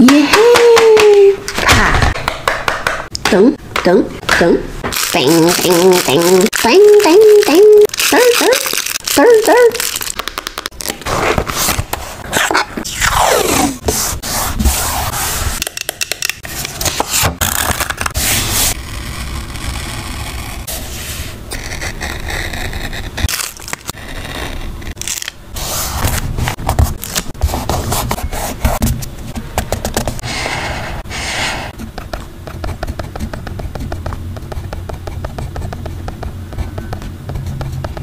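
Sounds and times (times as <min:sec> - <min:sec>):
paper crackling: 0:04.9 - 0:12.6.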